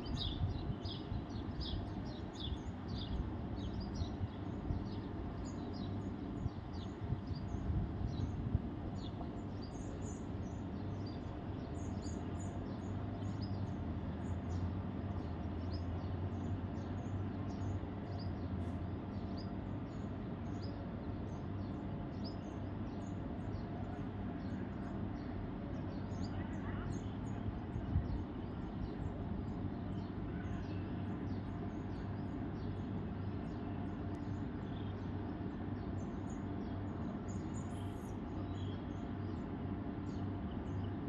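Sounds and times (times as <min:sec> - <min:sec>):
small birds chirping: 0:00.0 - 0:41.0
steady low rumble: 0:27.2 - 0:30.0.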